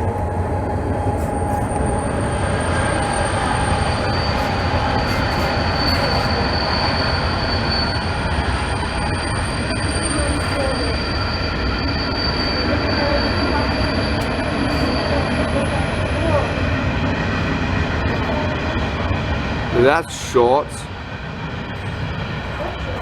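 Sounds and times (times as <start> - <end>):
freight train wheels rumbling: 0.0 - 23.0
high thin wheel squeal: 0.1 - 16.5.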